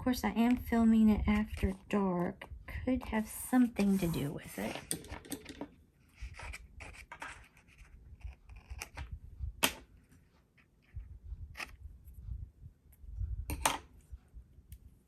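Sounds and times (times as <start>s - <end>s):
paper and tape rustling: 3.8s - 5.4s, 6.0s - 9.2s.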